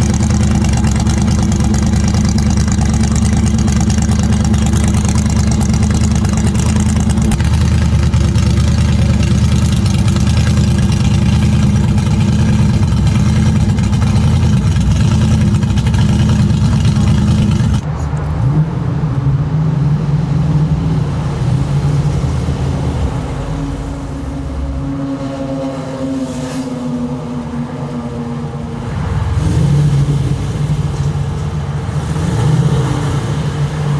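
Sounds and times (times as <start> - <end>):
engine revving: 0.0 - 18.9, 28.7 - 33.9
car engine idling: 0.0 - 19.6.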